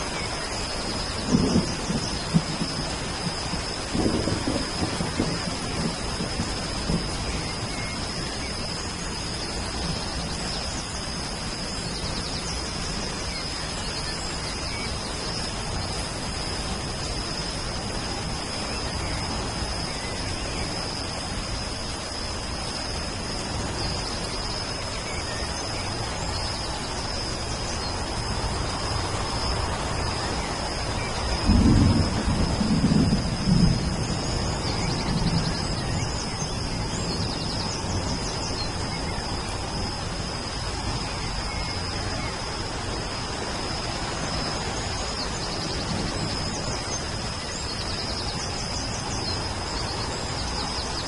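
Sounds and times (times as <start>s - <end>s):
thunder rumbles: 0.0s - 10.5s, 27.8s - 40.9s, 44.2s - 48.3s
steady rain falling: 0.0s - 51.0s.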